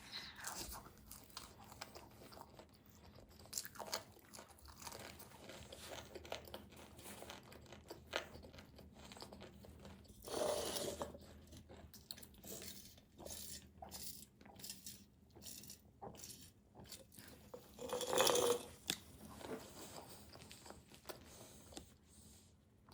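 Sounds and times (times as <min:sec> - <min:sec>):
chewing pizza: 0:00.0 - 0:17.8, 0:18.7 - 0:22.9.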